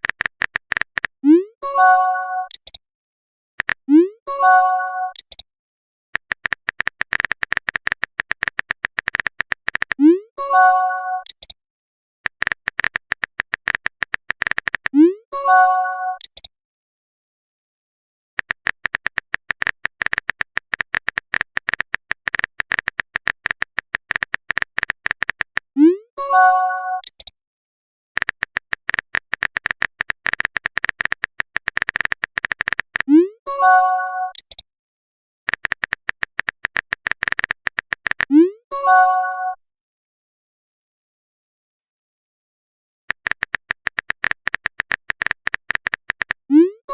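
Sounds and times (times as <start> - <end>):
typing clicks: 0.0 - 1.2, 2.5 - 2.8, 3.6 - 4.1, 5.1 - 5.4, 6.2 - 10.1, 11.2 - 11.6, 12.3 - 15.1, 16.2 - 16.5, 18.4 - 25.7, 27.0 - 27.4, 28.2 - 33.2, 34.3 - 34.6, 35.5 - 38.3, 43.1 - 46.5.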